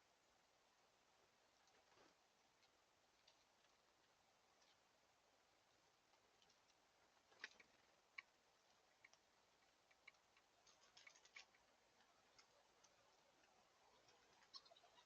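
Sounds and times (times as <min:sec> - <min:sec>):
small clicks and taps: 0:06.1 - 0:11.7.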